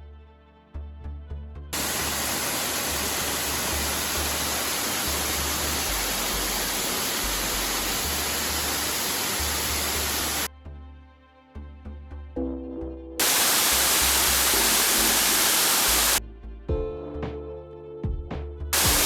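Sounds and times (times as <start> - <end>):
waterfall rushing: 1.8 - 10.5, 13.2 - 16.2, 18.8 - 19.0.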